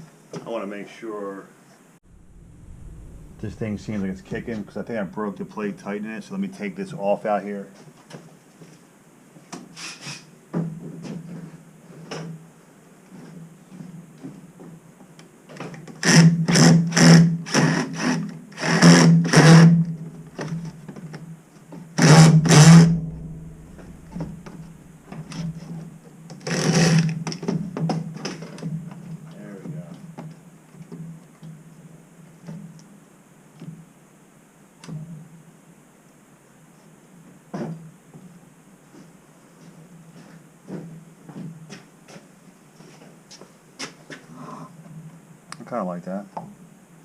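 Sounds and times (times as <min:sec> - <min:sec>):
faint steady hum: 0:00.8 - 0:07.8, 0:19.8 - 0:27.3.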